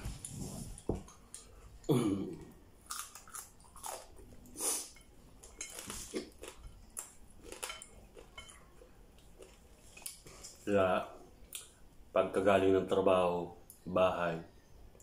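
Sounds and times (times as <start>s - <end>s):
food crunches: 2.8s - 4.5s, 5.5s - 8.4s
person chewing and smacking: 2.9s - 10.6s.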